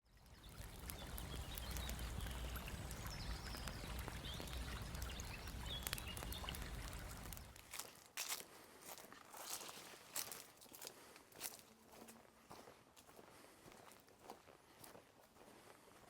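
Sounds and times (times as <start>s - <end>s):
sharp crackles: 0.2s - 8.0s
faint bird chirps: 0.3s - 7.5s.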